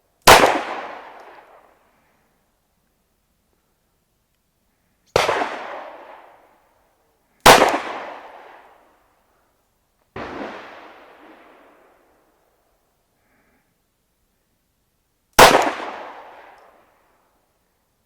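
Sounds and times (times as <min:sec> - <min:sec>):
pistol shots: 0:00.2 - 0:01.5, 0:05.2 - 0:06.3, 0:07.4 - 0:08.6, 0:15.4 - 0:16.6.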